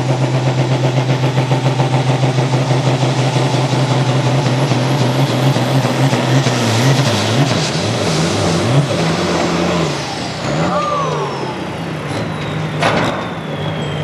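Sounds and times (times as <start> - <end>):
tractor diesel engine running: 0.0 - 14.0
high falling whistle: 10.1 - 14.0.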